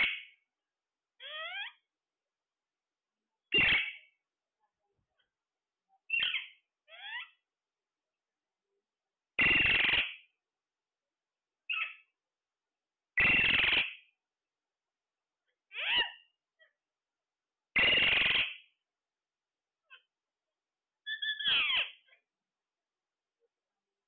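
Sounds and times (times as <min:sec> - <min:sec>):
parrot squawking: 0:00.0 - 0:00.4, 0:01.2 - 0:01.8, 0:03.5 - 0:04.1, 0:06.1 - 0:07.4, 0:09.4 - 0:10.2, 0:11.7 - 0:12.1, 0:13.2 - 0:14.0, 0:15.7 - 0:16.3, 0:17.8 - 0:18.6, 0:21.1 - 0:22.1.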